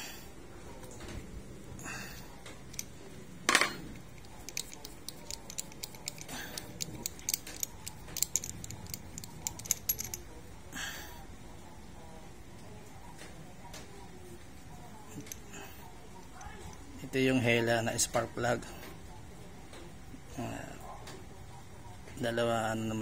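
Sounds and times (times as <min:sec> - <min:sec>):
metal tool clinking: 0:03.5 - 0:10.3.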